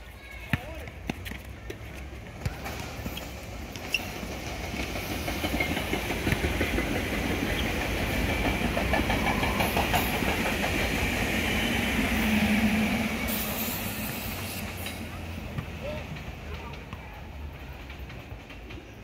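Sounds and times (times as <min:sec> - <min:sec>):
train wheels clicking over rail joints: 0:01.7 - 0:12.1, 0:13.3 - 0:19.0
electric train high whine: 0:03.4 - 0:17.6.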